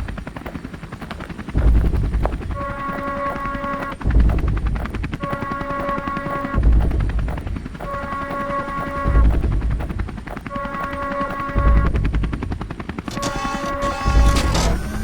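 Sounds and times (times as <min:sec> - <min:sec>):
helicopter rotor chopping: 0:00.0 - 0:15.0
deep thuds: 0:01.6 - 0:02.6, 0:04.0 - 0:05.2.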